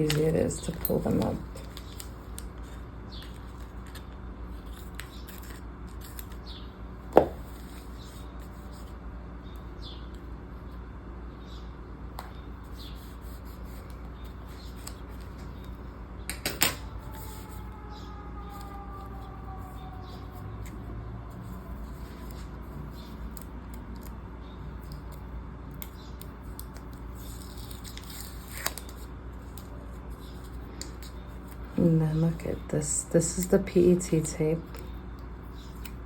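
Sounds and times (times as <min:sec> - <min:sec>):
paper rustling: 0:00.0 - 0:06.4, 0:26.4 - 0:32.3
steady low hum: 0:00.0 - 0:36.0.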